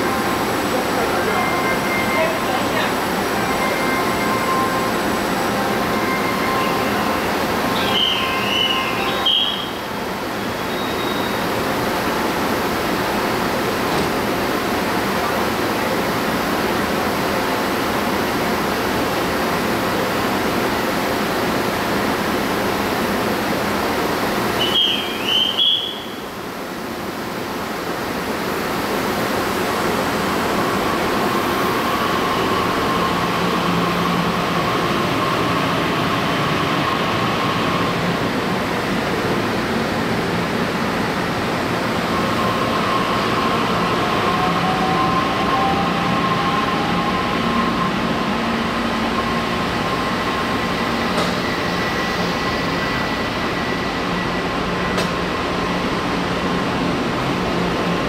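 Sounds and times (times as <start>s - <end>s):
train hum: 0.0s - 58.0s
short wavering whistle: 7.7s - 9.8s, 10.4s - 11.4s, 24.6s - 26.2s.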